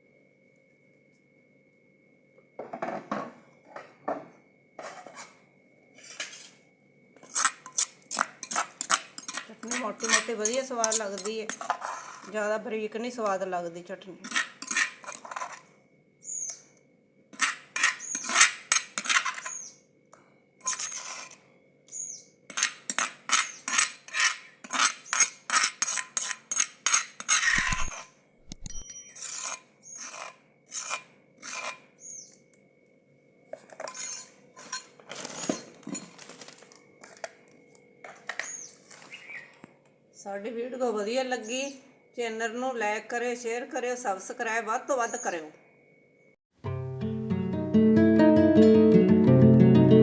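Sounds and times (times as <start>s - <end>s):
spoon scraping and clinking dish: 7.2s - 12.3s, 14.2s - 15.7s, 17.4s - 19.6s, 20.6s - 21.4s, 22.5s - 31.8s, 33.5s - 37.3s
bird chirping: 16.2s - 16.8s, 18.0s - 18.4s, 19.4s - 19.8s, 21.9s - 22.4s, 29.8s - 30.2s, 32.0s - 32.5s, 38.4s - 39.6s.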